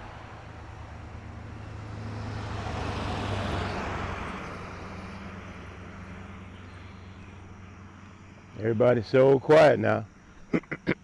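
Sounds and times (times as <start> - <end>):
vehicle passing by: 0.0 - 9.2.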